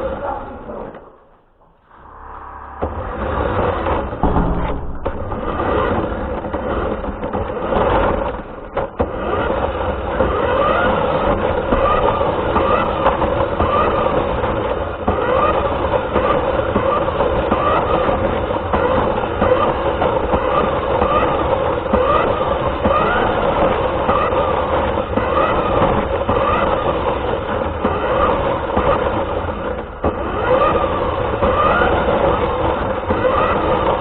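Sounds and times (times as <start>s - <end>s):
wheels rumbling on ground: 0.0s - 34.0s
rc car motor whine: 8.3s - 34.0s.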